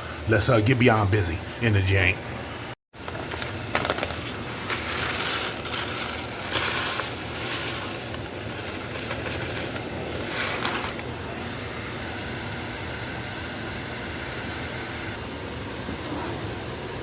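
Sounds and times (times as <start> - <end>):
steady low hum: 0.0 - 17.0
crackling and scraping handling noises: 3.0 - 11.0.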